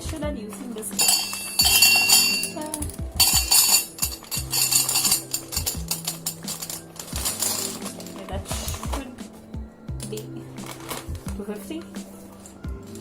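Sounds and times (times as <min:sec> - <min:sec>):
background music: 0:00.0 - 0:13.0
dry pasta rattling into a vessel: 0:03.2 - 0:08.3.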